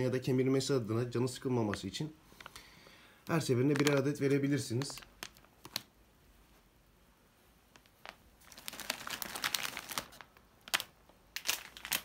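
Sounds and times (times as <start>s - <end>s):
plastic packaging crinkling: 3.2s - 5.9s, 7.7s - 12.0s.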